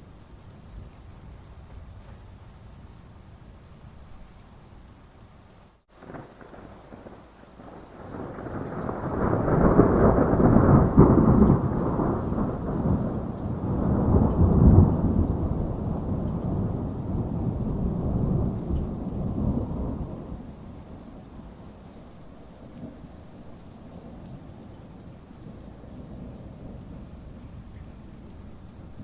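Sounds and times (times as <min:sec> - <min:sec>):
steady rain: 0:00.0 - 0:29.0
rolling thunder: 0:06.0 - 0:21.7.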